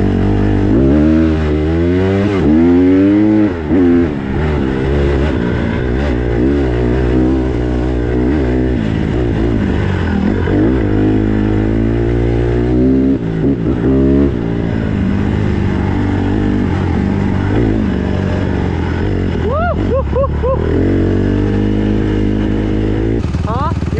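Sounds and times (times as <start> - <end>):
dirt bike engine revving: 0.0 - 23.9.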